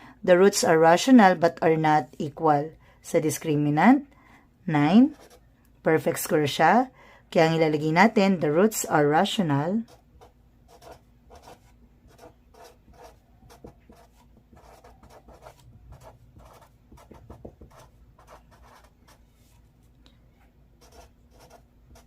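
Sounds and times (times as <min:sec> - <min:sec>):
pen scratching on paper: 0:05.0 - 0:05.4, 0:09.8 - 0:19.6, 0:20.8 - 0:22.0.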